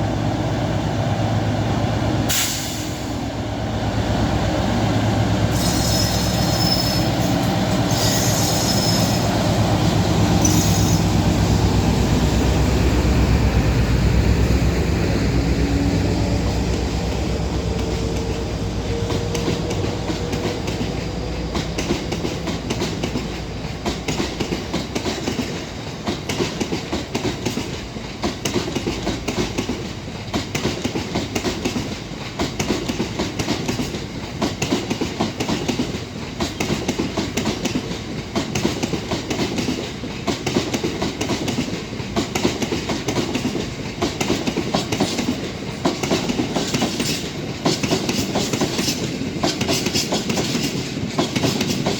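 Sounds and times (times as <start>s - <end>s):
locomotive engine hum: 3.2s - 25.1s
train wheels clattering over rail joints: 16.8s - 51.9s.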